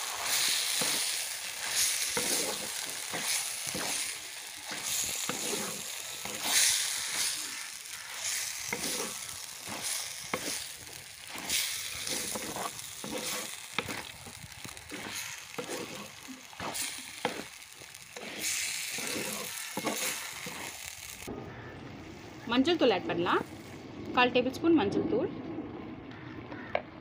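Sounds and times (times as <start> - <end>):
food sizzling in a clay pot: 0.0 - 21.7
wooden spatula scraping a pot: 1.7 - 20.8.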